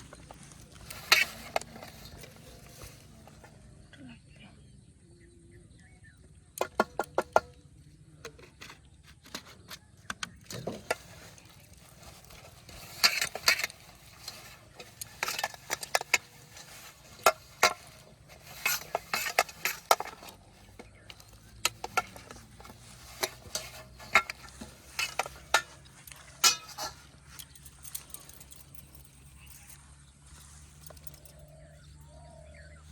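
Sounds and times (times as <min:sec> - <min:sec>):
dough scraping in a bowl: 0:08.4 - 0:27.2.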